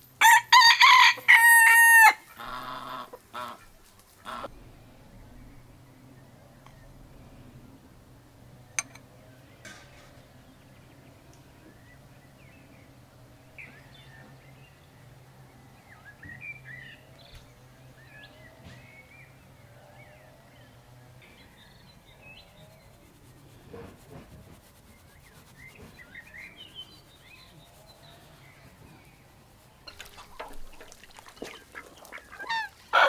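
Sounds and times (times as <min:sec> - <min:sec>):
faint low hum: 0:02.2 - 0:33.0
small birds chirping: 0:09.2 - 0:33.0.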